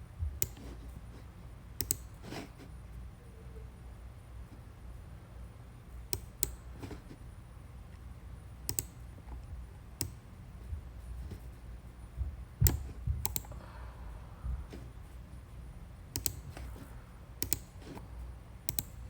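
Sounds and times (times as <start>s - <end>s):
mouse and keyboard clicks: 0.4s - 0.7s, 1.8s - 2.1s, 8.7s - 9.0s, 12.6s - 13.6s, 16.2s - 16.7s, 17.4s - 18.0s, 18.7s - 19.0s.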